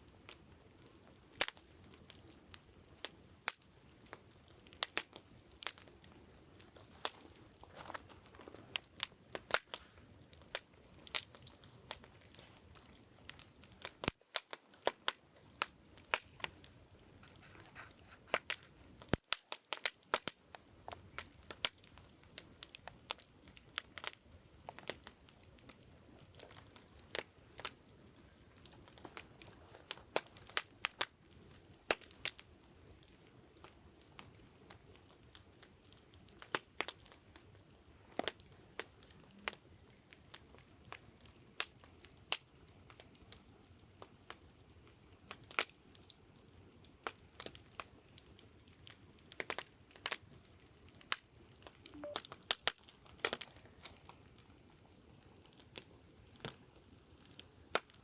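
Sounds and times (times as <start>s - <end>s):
burning logs popping and snapping: 0.0s - 58.0s
soft hiss of flame: 0.2s - 46.2s.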